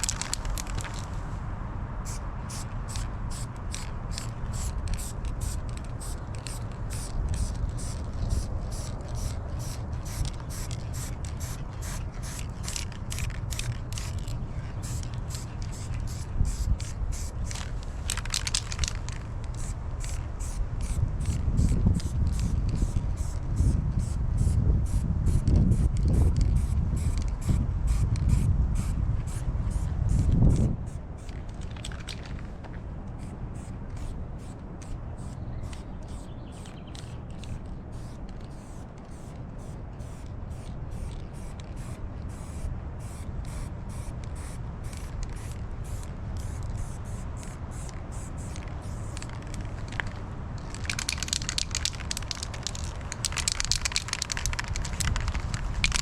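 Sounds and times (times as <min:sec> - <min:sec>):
spray paint hissing: 0:02.0 - 0:32.0, 0:33.2 - 0:56.0
spray can ball clicking: 0:02.5 - 0:23.4, 0:35.2 - 0:56.0.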